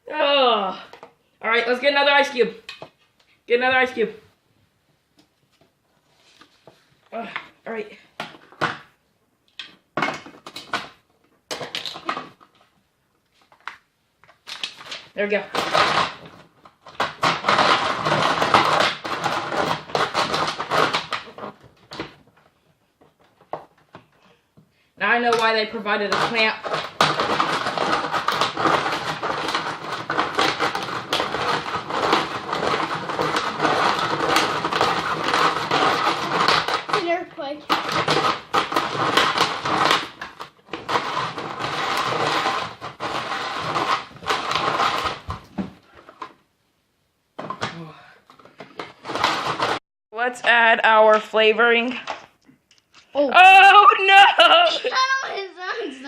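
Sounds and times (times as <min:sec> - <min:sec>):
plastic machine shaking: 0:14.5 - 0:22.1, 0:25.3 - 0:37.1, 0:37.7 - 0:46.3, 0:48.7 - 0:49.8
ice shaver grinding ice: 0:26.2 - 0:36.9, 0:40.7 - 0:45.2.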